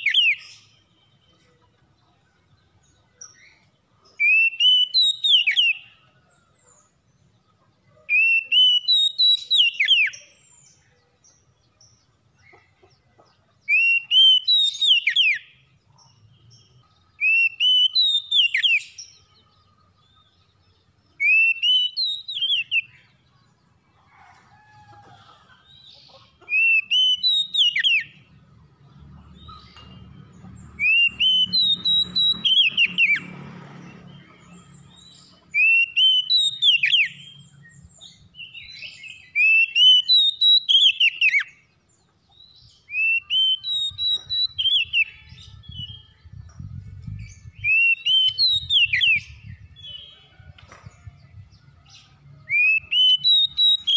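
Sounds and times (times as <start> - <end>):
bird singing whistled phrase: 42.9 - 45.1.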